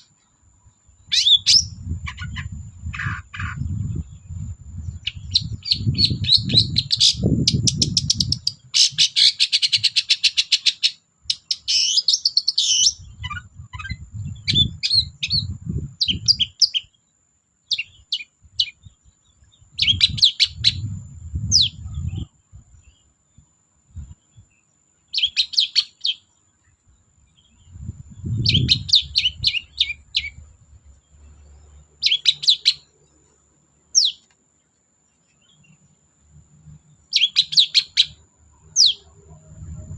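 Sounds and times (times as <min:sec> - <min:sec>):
bird harsh chattering song: 0:00.9 - 0:17.0, 0:17.7 - 0:23.1, 0:25.1 - 0:26.7, 0:27.3 - 0:32.9, 0:33.9 - 0:34.3, 0:37.0 - 0:39.7
low rumbling noise: 0:38.5 - 0:39.9.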